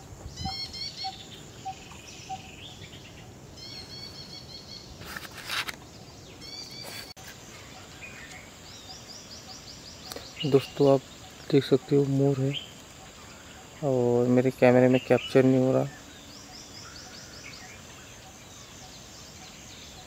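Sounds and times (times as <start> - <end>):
high rising bird chirps: 0.0 - 5.2, 5.9 - 20.0
brief rustle: 5.0 - 5.8, 6.8 - 7.4.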